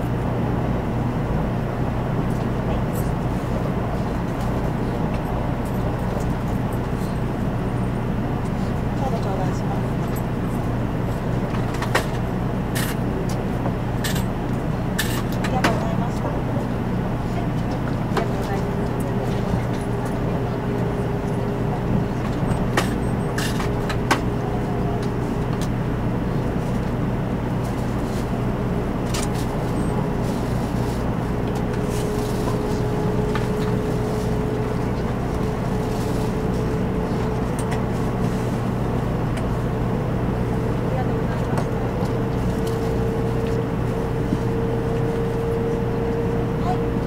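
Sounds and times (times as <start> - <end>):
train cabin rumble: 0.0 - 47.0.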